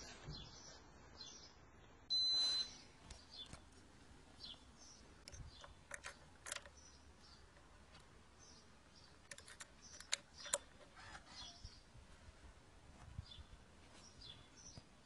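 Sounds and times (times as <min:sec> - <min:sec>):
birds chirping: 0:00.0 - 0:12.0, 0:13.2 - 0:15.0
high-pitched electronic beep: 0:02.1 - 0:02.8.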